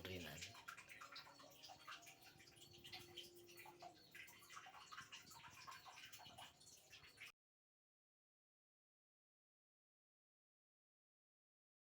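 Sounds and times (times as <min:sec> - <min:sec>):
water dripping and splashing: 0:00.0 - 0:07.3.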